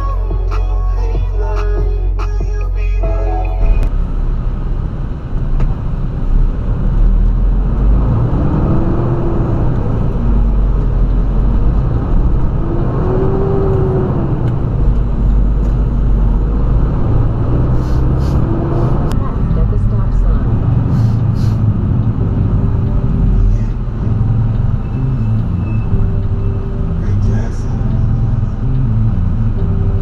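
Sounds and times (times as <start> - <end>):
vehicle engine and road rumble: 0.0 - 30.0.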